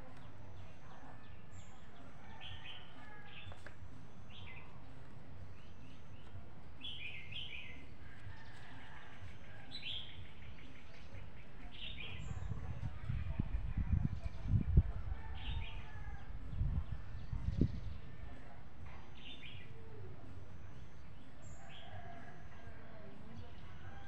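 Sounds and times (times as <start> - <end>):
small birds chirping: 0.0 - 24.0
steady low rumble: 9.2 - 19.1.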